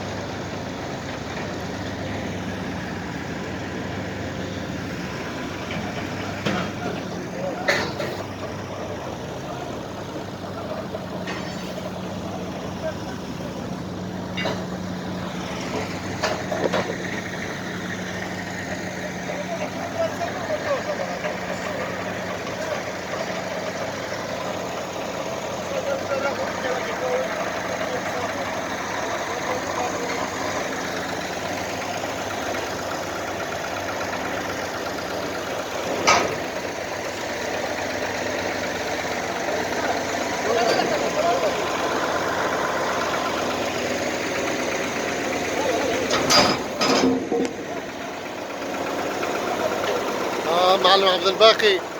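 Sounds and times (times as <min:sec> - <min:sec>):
heavy engine idling: 0:00.0 - 0:51.9
sharp knocks or clanks: 0:36.0 - 0:36.4, 0:46.1 - 0:47.6.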